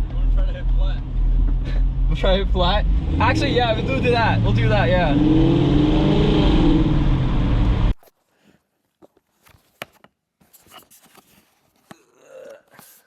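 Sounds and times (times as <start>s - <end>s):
car engine running loud: 0.0s - 8.0s.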